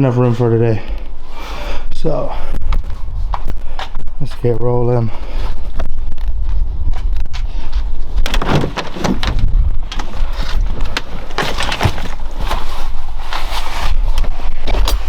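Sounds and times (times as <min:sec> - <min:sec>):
road and wind rumble: 0:05.7 - 0:13.1
vehicle knocks and rattles: 0:08.2 - 0:12.8.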